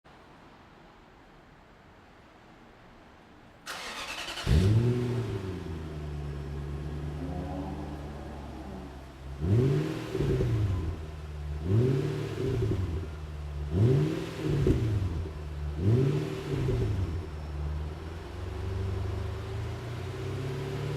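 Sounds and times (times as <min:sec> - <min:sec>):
engine starter cranking: 0:03.7 - 0:05.0
car engine idling and revving: 0:03.7 - 0:20.9.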